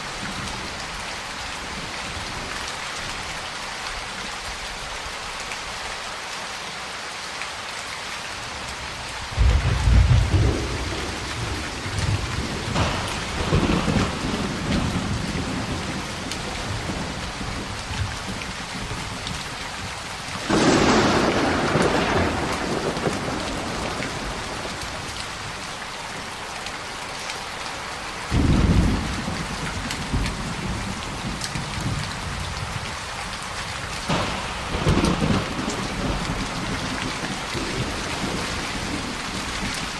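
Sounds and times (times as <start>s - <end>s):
heavy rain falling: 0.0s - 39.9s
thunder rumbling: 9.4s - 19.5s, 20.4s - 25.6s, 28.3s - 33.0s, 34.0s - 39.9s.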